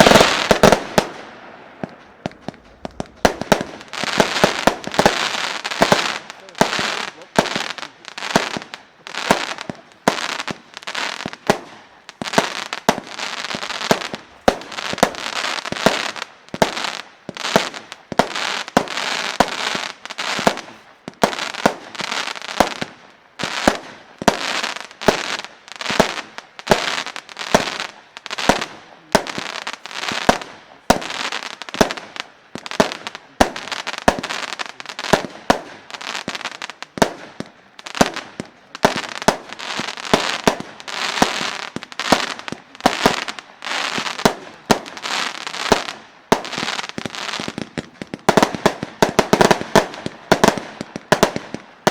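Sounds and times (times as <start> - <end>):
firework launch cracks: 0.0 - 51.9.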